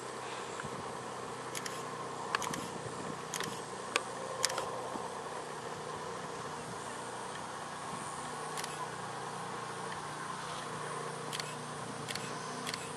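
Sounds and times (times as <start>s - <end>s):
droning hum: 0.0s - 12.9s
sharp clicks: 1.5s - 2.7s, 3.3s - 4.7s, 8.6s - 8.8s, 11.3s - 12.9s.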